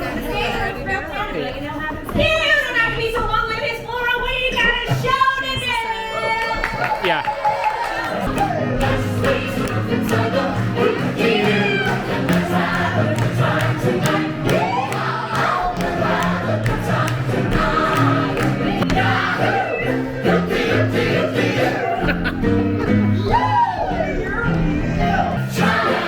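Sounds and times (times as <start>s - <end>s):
audience voices: 0.0s - 26.0s
performers singing with instruments: 8.7s - 22.4s, 25.0s - 26.0s.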